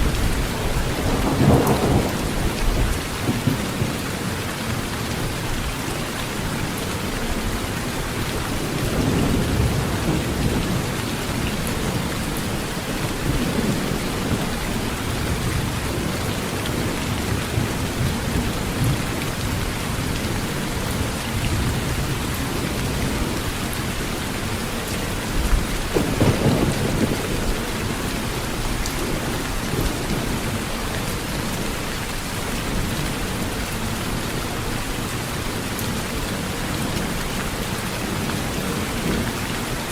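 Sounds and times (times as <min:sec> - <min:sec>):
heavy rain on a tin roof: 0:00.0 - 0:39.9
rolls of thunder: 0:25.4 - 0:27.6.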